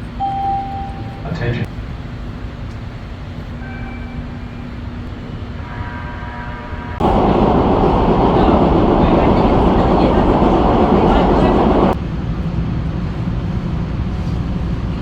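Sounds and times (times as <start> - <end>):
subway train rumbling: 0.0 - 15.0
loud rushing rumble: 7.0 - 14.1.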